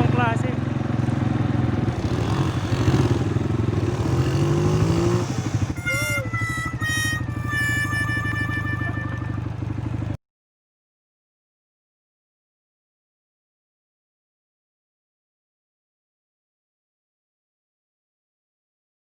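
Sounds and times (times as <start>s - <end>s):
atv engine idling: 0.0s - 10.2s
high steady tones: 5.4s - 9.5s.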